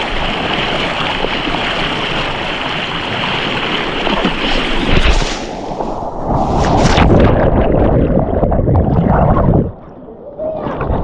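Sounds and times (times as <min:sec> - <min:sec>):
rushing water of a stream: 0:00.0 - 0:07.9.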